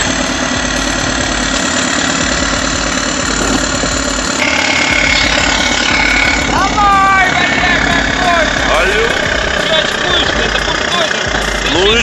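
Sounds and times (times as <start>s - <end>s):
bulldozer diesel engine running: 0.0s - 12.0s
high whine: 0.0s - 12.0s.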